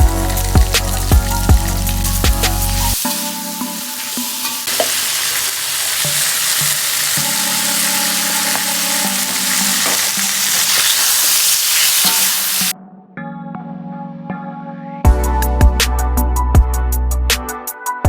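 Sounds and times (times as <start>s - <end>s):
food sizzling in hot oil: 0.0s - 12.7s.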